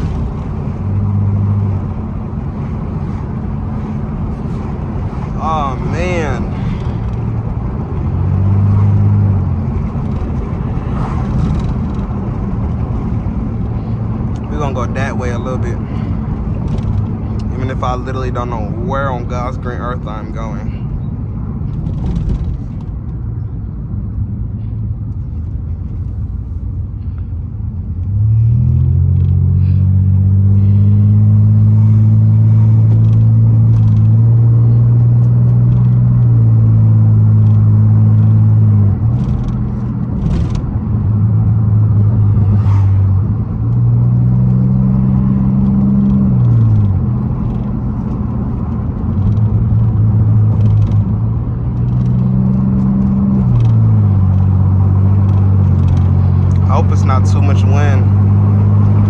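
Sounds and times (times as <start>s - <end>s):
car exhaust drone: 0.0s - 59.0s.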